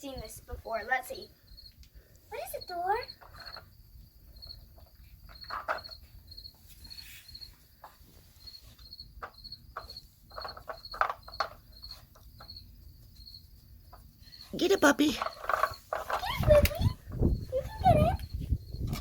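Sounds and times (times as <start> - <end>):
dog pawing plastic toy: 14.6 - 17.2.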